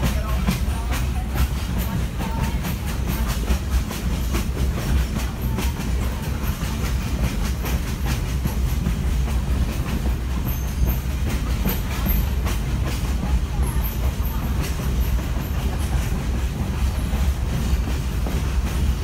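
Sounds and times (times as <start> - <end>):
train wheels rumbling on rails: 0.0 - 19.0
wheels clacking over rail joints: 0.0 - 19.0.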